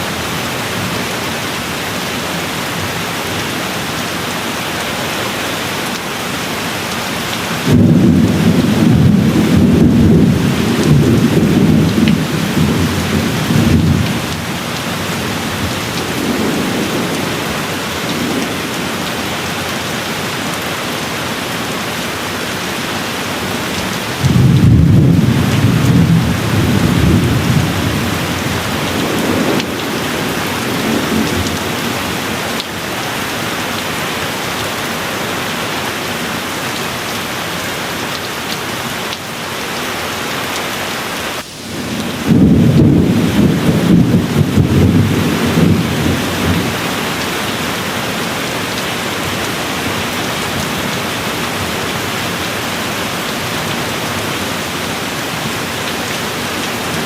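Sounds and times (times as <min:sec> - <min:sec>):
steady rain falling: 0:00.0 - 0:57.0
thunder rolling: 0:07.6 - 0:19.4, 0:24.2 - 0:32.2, 0:41.3 - 0:46.9.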